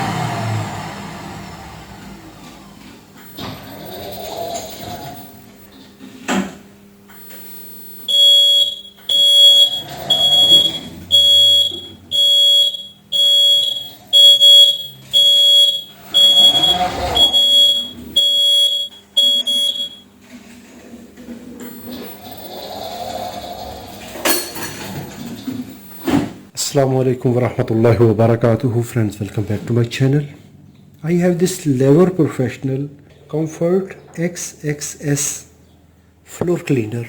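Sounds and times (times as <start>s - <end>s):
electronic alarm beeping: 3.2s - 5.8s, 7.1s - 20.1s, 21.6s - 26.3s.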